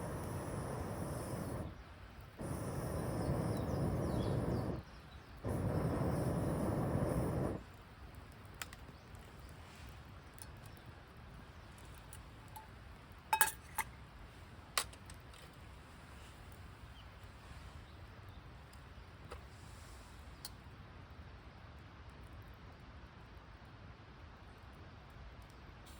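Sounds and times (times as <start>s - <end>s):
light metal clinks: 12.5s - 14.0s.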